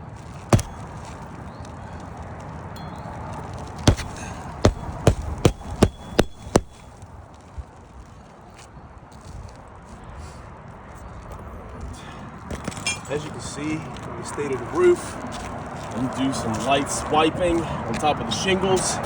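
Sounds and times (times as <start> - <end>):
hammer striking roofing nail: 0.6 - 0.8, 3.9 - 6.9.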